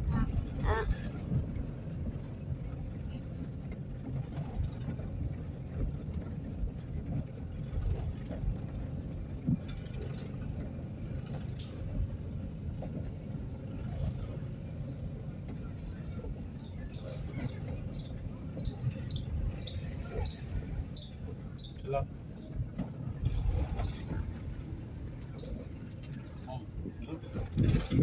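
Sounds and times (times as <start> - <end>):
car engine low rumble: 0.0 - 28.0.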